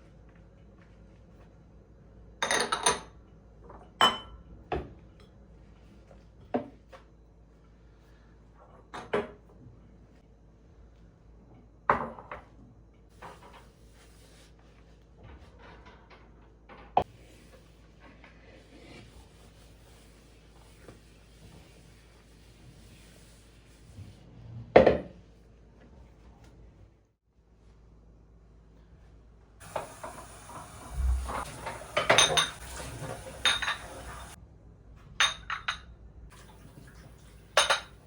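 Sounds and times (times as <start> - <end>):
dishes and cutlery clinking: 29.6 - 34.4, 37.5 - 38.0.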